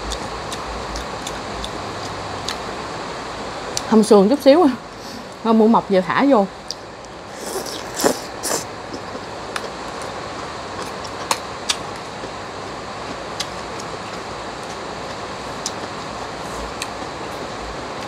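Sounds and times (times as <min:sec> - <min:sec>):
noodles slurped and chewed: 0:07.4 - 0:09.3.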